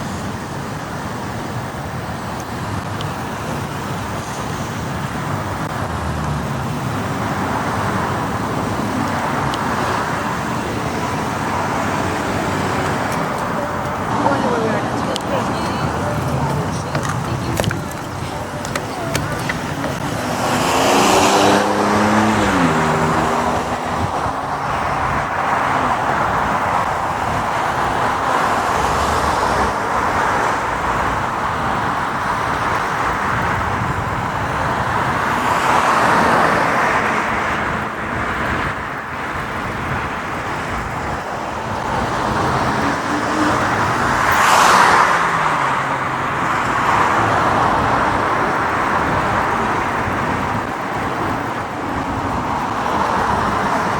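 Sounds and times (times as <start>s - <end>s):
tyre and wind noise: 0.0s - 53.9s
vehicles passing: 0.0s - 53.9s
motorcycle engine: 3.8s - 27.0s.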